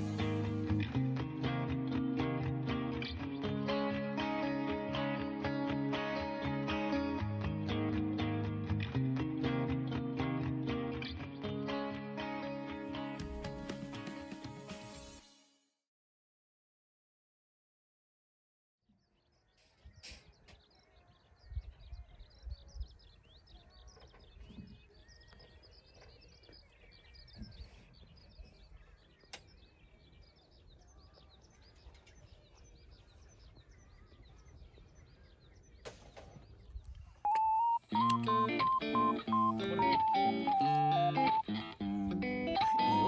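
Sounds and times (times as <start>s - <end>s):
birds chirping: 19.0s - 43.0s.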